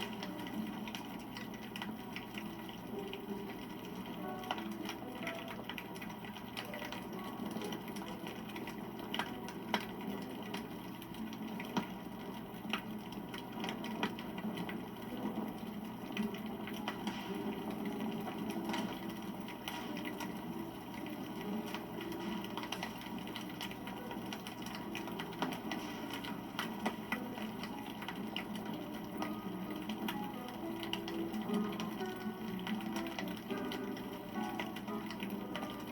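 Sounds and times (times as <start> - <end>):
campfire crackling: 0.0 - 35.9.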